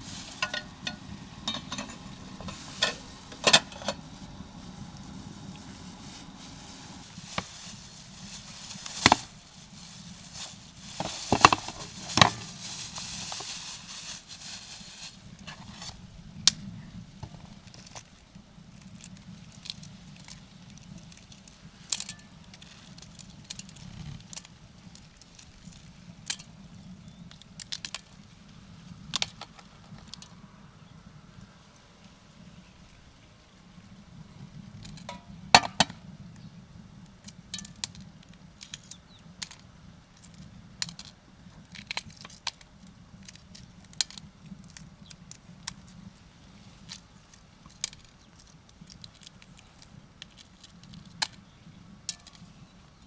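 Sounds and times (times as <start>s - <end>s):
soft frying sizzle: 0.0s - 16.6s
cooking clicks and knocks: 0.1s - 4.8s, 5.4s - 15.9s.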